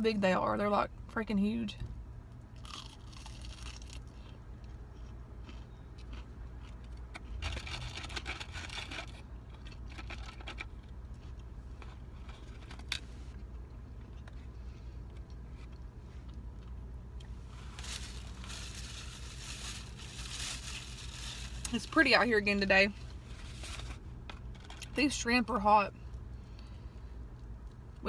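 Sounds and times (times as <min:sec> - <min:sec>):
car low hum: 0:00.0 - 0:28.0
crunchy chewing of fried food: 0:02.3 - 0:21.7.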